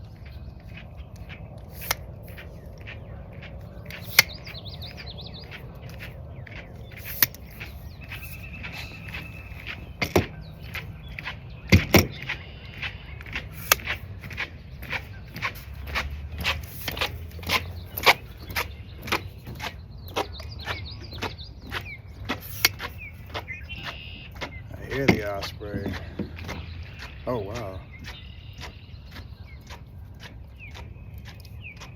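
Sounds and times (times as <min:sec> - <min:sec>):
faint bird calls: 0:00.0 - 0:31.9
handling clicks and knocks: 0:06.9 - 0:12.4, 0:13.6 - 0:28.8.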